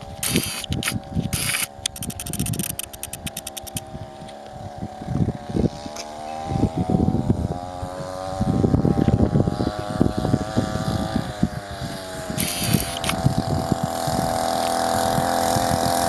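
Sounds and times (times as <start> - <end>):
two-stroke moped engine running: 0.0 - 16.0
rapid clicking: 0.2 - 3.8, 12.4 - 13.2.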